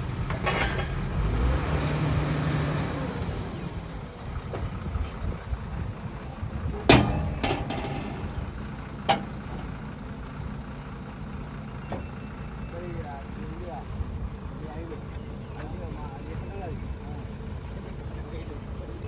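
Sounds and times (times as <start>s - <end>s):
drilling rig engine rumbling: 0.0s - 19.0s
sharp metallic clanks: 0.2s - 1.2s, 6.8s - 9.9s.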